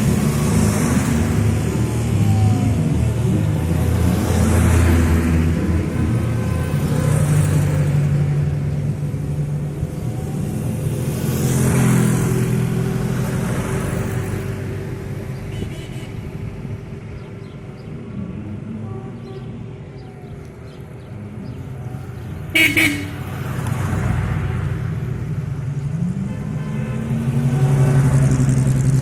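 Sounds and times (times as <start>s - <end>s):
vehicles driving past: 0.0s - 29.0s.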